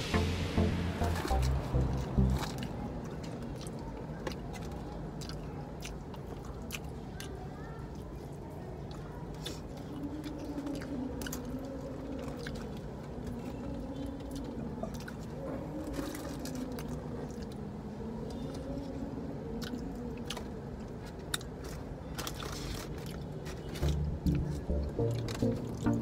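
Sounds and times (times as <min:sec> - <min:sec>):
low hum: 0:00.0 - 0:03.6, 0:23.8 - 0:26.0
chewing crispy fried chicken: 0:02.3 - 0:26.0.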